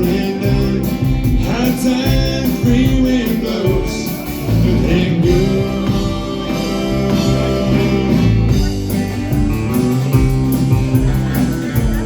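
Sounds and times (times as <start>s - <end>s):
person singing: 0.0s - 9.5s
bass guitar: 0.0s - 12.0s
drums: 0.0s - 12.0s
electric guitar: 0.0s - 12.0s.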